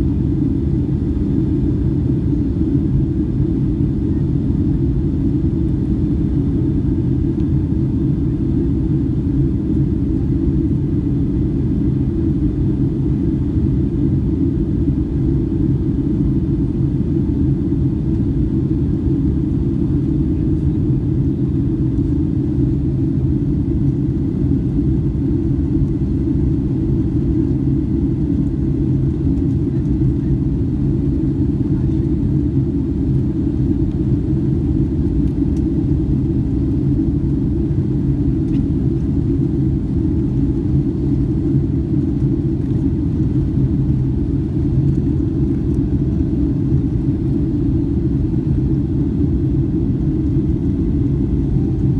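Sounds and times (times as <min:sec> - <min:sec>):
airliner cabin jet engine roar: 0:00.0 - 0:51.9.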